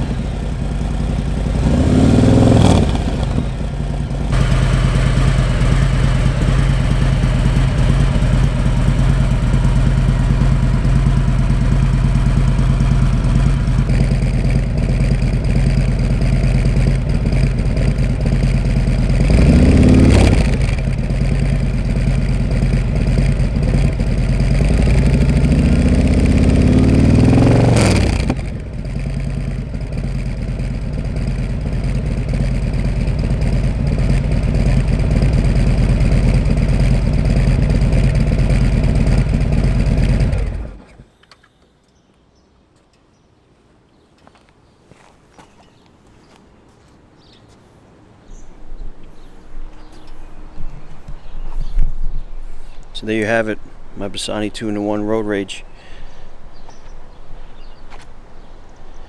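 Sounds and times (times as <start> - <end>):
motorcycle engine idling and revving: 0.0 - 41.1.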